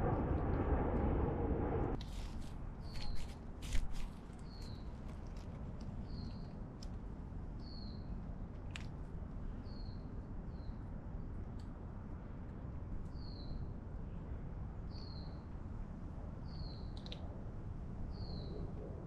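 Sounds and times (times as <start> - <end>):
low outdoor rumble: 0.0 - 2.7.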